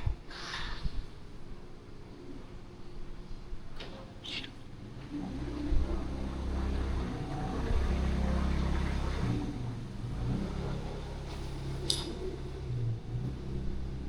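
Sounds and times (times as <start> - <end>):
vehicle engine rumble: 5.3 - 14.0.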